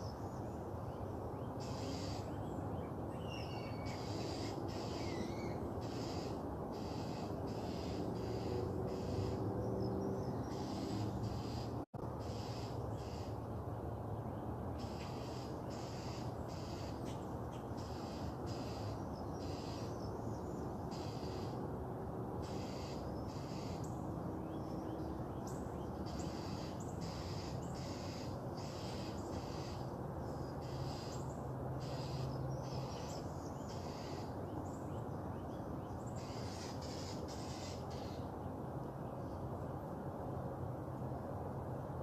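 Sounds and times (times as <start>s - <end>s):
bird calling high short calls: 1.6s - 2.4s, 3.2s - 9.4s, 10.4s - 13.4s, 14.8s - 17.2s, 17.8s - 19.9s, 22.4s - 23.8s, 31.8s - 34.3s, 36.2s - 38.2s.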